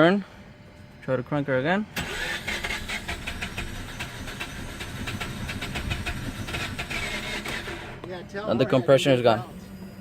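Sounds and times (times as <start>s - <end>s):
engine cranking without firing: 2.0s - 8.0s.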